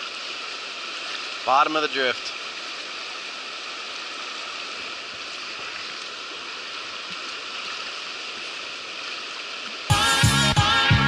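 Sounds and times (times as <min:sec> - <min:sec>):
fast-flowing river rushing: 0:00.0 - 0:10.1
electronic music with a beat: 0:09.9 - 0:11.0.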